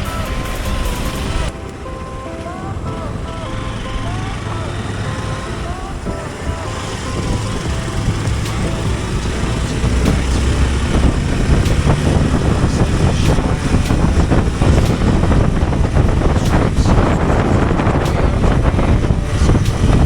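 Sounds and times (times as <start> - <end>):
wind noise on microphone: 0.0 - 20.0
motorcycle engine running: 6.7 - 20.0.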